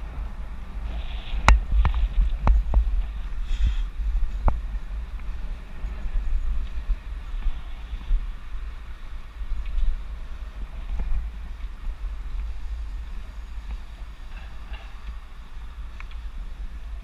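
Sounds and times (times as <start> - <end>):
bicycle riding noise hiss: 0.0 - 17.0
wind buffeting microphone: 0.0 - 17.0
faint ticks: 9.6 - 10.0, 15.9 - 16.3.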